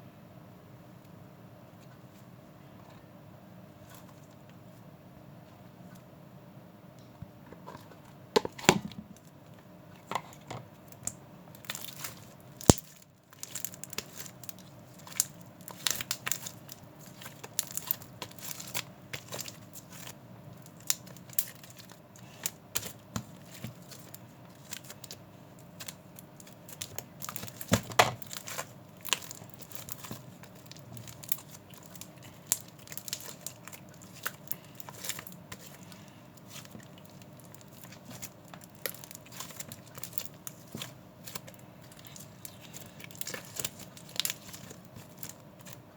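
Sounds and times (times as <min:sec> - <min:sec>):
faint steady hum: 0:00.0 - 0:45.9
crinkling rustles: 0:11.6 - 0:45.9.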